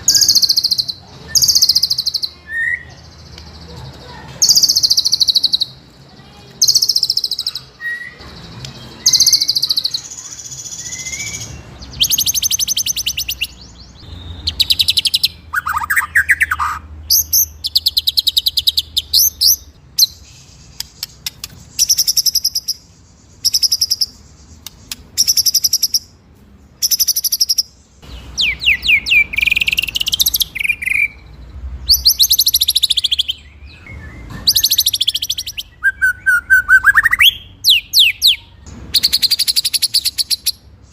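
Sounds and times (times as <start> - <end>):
songbird singing high trills: 6.6 - 26.1, 26.8 - 40.6.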